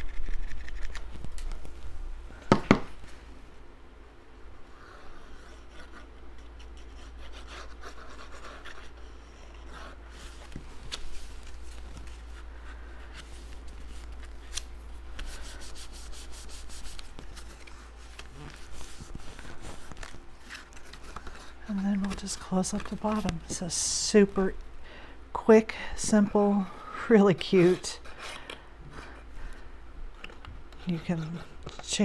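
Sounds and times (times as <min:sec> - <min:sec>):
cardstock rustling and scraping: 0:05.3 - 0:24.6.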